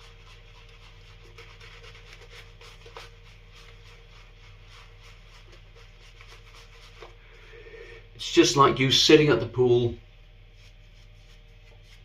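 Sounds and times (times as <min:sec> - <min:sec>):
shaving brush scratching: 0:00.0 - 0:07.9, 0:10.5 - 0:12.0.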